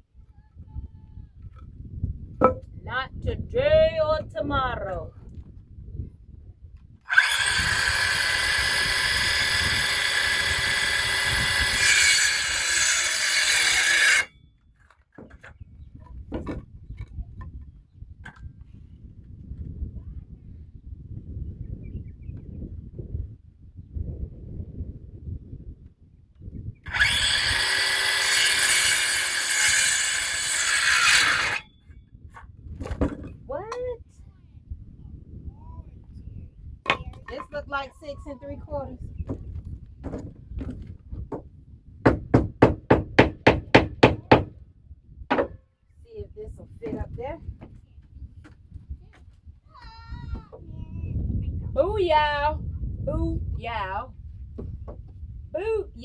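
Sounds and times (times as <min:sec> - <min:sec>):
power saw cutting wood: 0:07.1 - 0:14.3, 0:26.9 - 0:31.7.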